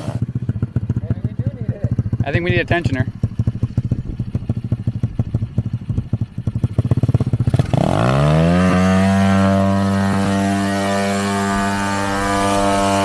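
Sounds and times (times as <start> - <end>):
dirt bike engine idling and revving: 0.0 - 13.0.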